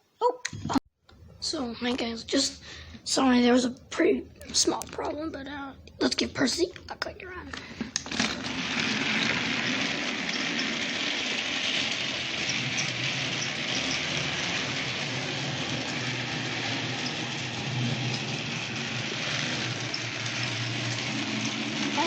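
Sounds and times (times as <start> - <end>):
toy train motor whirring: 7.5 - 22.0.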